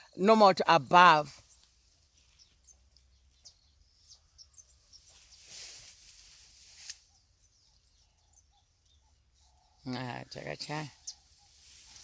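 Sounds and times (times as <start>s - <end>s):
rustling noise: 4.7s - 7.3s, 10.9s - 12.0s.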